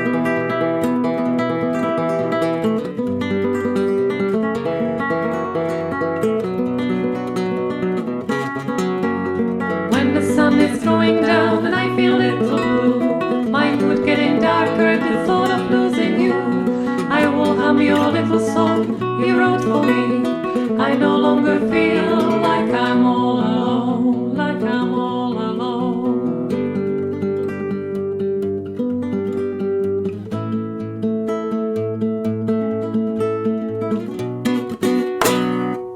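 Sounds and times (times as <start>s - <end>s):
strummed acoustic guitar: 0.0s - 35.9s
person singing: 9.9s - 26.4s.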